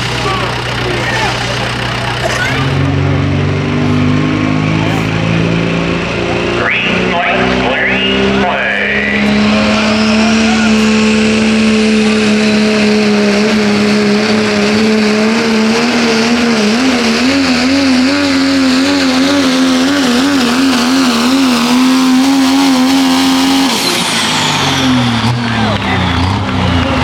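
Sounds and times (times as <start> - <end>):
diesel truck engine at full throttle: 0.0 - 27.0.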